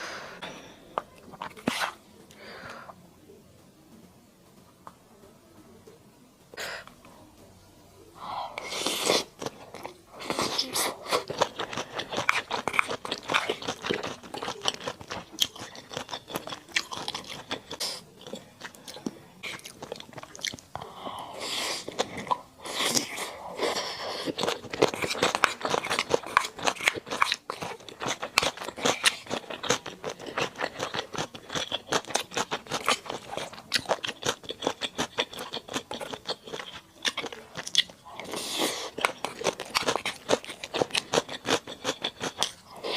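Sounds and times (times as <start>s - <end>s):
chewing with wet crunching: 8.6s - 21.0s, 21.6s - 42.9s.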